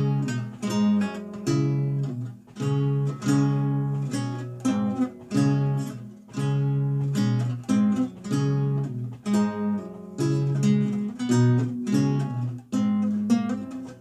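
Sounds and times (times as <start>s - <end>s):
solo lute plucked: 0.0s - 14.0s.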